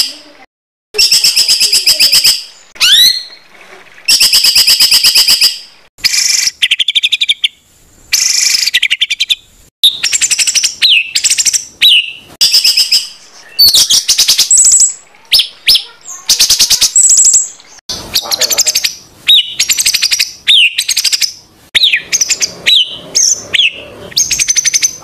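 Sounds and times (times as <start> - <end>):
songbird harsh repeated notes: 1.0 - 3.4, 8.2 - 25.0.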